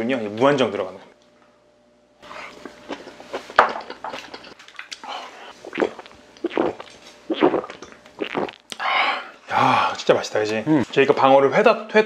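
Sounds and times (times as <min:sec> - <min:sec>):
wet chewing and mouth noises: 0:02.2 - 0:08.8.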